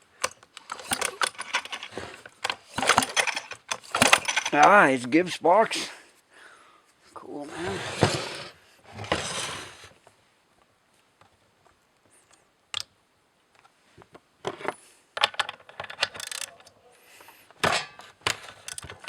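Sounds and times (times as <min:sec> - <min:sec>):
metallic clicks and rattles: 0:00.1 - 0:04.8, 0:15.2 - 0:19.0.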